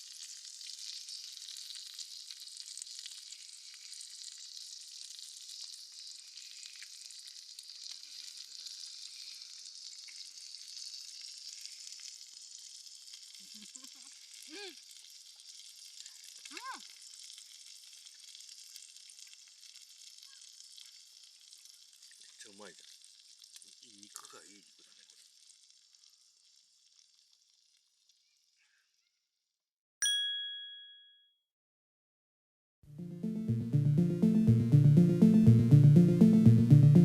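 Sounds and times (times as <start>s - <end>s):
beef sizzling on a grill: 0.0s - 29.4s.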